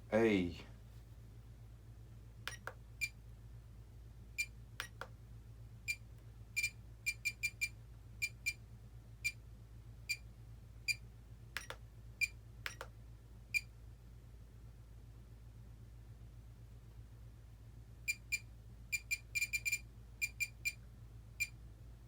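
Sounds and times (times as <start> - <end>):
control clicks: 2.5 - 2.8, 4.8 - 5.1, 11.6 - 11.8, 12.6 - 12.9
high-pitched transmitter beeps: 6.6 - 8.6, 19.0 - 20.7.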